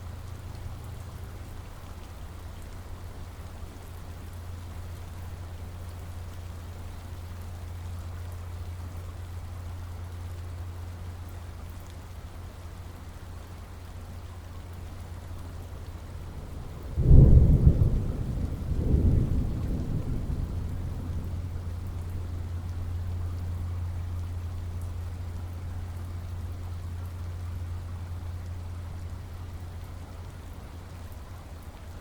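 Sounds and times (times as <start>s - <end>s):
steady rain: 0.0s - 32.0s
thunder clap and rumble: 16.1s - 22.8s.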